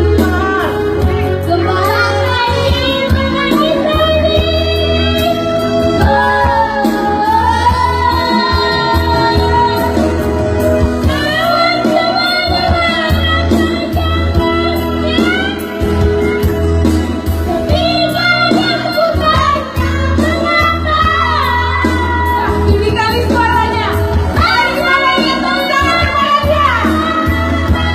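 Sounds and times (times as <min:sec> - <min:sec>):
instrumental music with bass: 0:00.0 - 0:27.9
child singing: 0:00.2 - 0:10.0.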